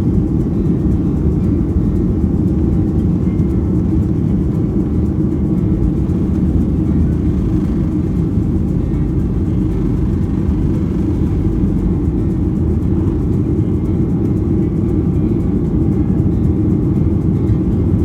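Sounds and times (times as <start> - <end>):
jet airliner taking off: 5.6 - 13.7.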